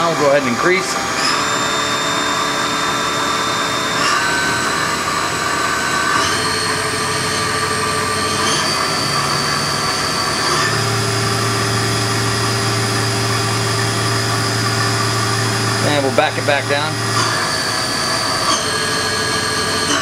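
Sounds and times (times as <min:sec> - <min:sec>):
milling machine spindle whine: 0:00.0 - 0:20.0.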